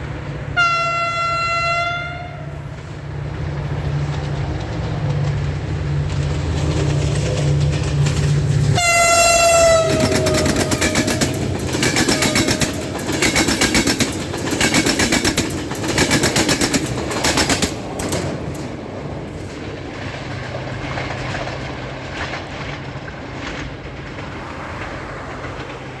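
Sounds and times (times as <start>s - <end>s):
train wheels clattering: 0.0s - 26.0s
locomotive horn blasts: 0.6s - 2.7s, 8.8s - 13.0s.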